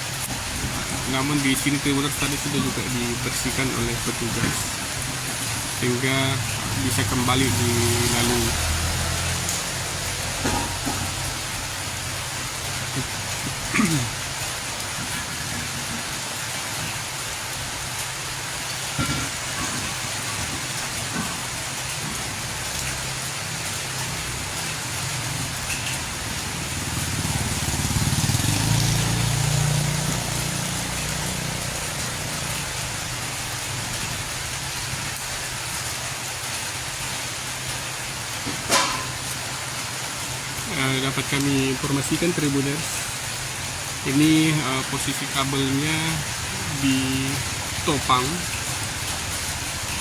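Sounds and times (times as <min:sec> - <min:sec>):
steady hiss: 0:00.0 - 0:28.0, 0:37.4 - 0:50.0
vehicle passing: 0:04.9 - 0:13.4, 0:22.2 - 0:33.2.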